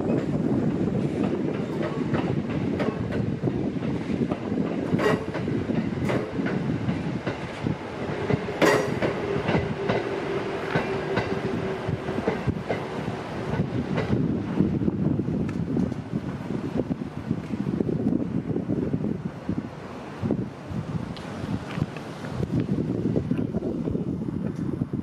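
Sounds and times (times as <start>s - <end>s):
wheels clacking over rail joints: 0.0s - 14.3s
train steady whine: 0.0s - 25.0s.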